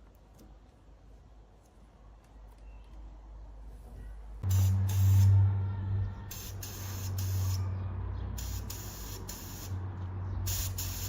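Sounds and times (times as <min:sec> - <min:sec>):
compressed air hissing bursts: 0:04.4 - 0:05.4, 0:06.3 - 0:07.7, 0:08.4 - 0:09.8, 0:10.5 - 0:11.0
low machine hum: 0:04.4 - 0:08.4.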